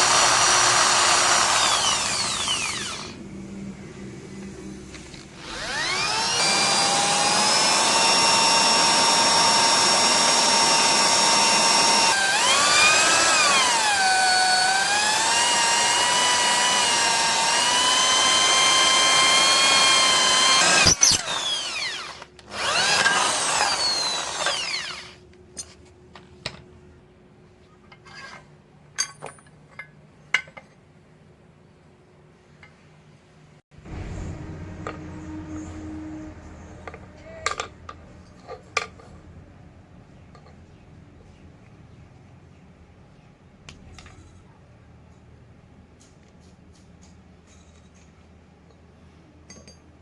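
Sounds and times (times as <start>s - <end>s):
power tool whining: 0.0s - 3.2s, 5.1s - 25.2s.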